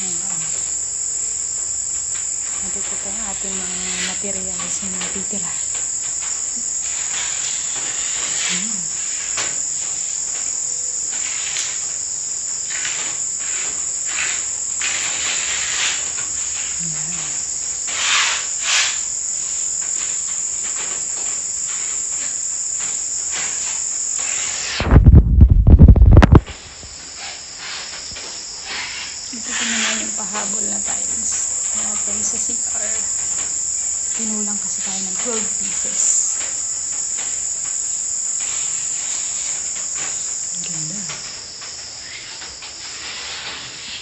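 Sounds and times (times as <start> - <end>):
high-pitched insect chorus: 0.0 - 44.0
wind buffeting microphone: 24.8 - 26.6.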